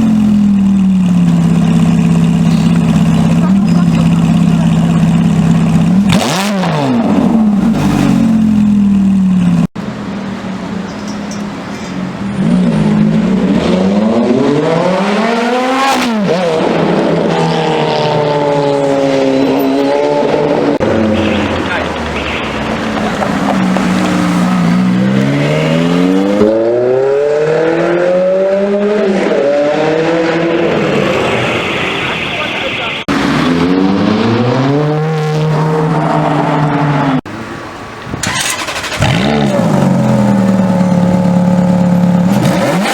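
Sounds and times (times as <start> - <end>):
engine running steadily: 0.0 - 13.4, 37.3 - 42.9
car engine revving: 0.0 - 42.9.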